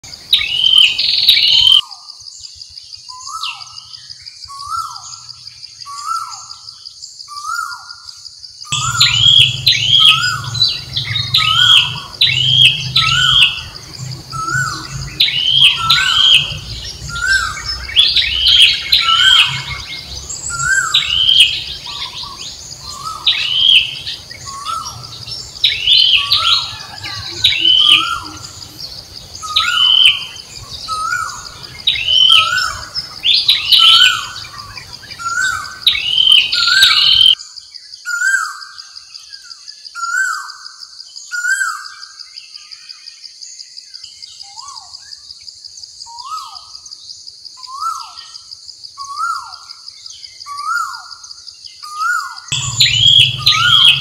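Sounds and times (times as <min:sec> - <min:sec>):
bird chirping: 0:00.0 - 0:54.0
steady high hum: 0:08.8 - 0:18.0, 0:52.5 - 0:54.0.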